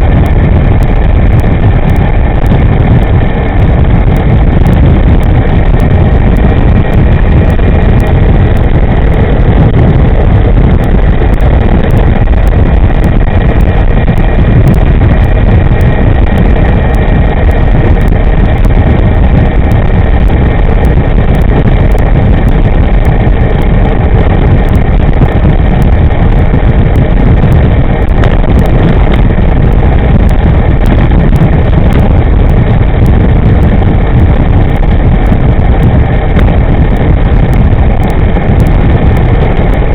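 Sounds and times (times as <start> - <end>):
faint thin whine: 0.0 - 39.9
wind buffeting microphone: 0.0 - 39.9.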